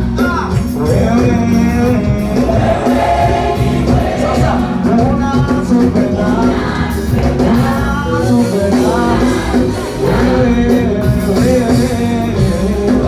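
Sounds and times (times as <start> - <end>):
backing band: 0.0 - 13.0
choir singing: 2.2 - 11.5.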